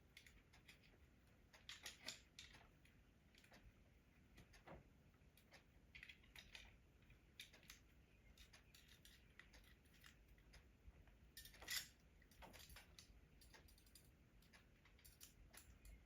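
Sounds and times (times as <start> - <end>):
small metal hardware clicking: 1.5 - 2.7, 8.4 - 10.2, 11.4 - 16.0.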